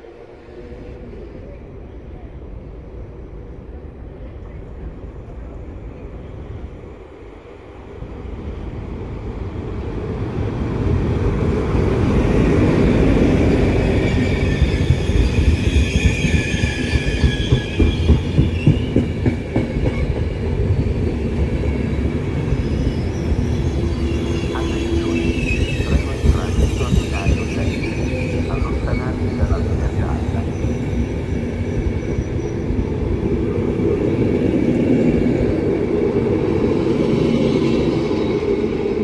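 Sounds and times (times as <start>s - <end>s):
passenger train wheels clacking: 12.9s - 22.2s, 23.4s - 32.2s
faint high wheel squeal: 14.0s - 19.0s.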